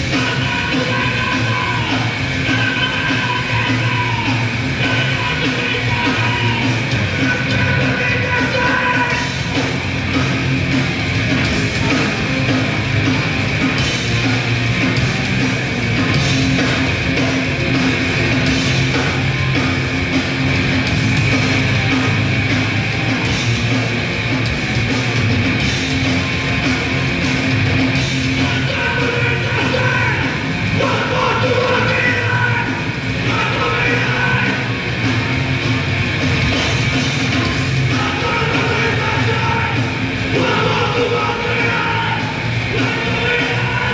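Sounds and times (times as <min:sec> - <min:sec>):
bass guitar: 0:00.0 - 0:43.9
distorted electric guitar: 0:00.0 - 0:43.9
drums: 0:00.0 - 0:43.9
person yelling vocals: 0:00.2 - 0:09.3, 0:28.4 - 0:34.7, 0:37.9 - 0:43.9.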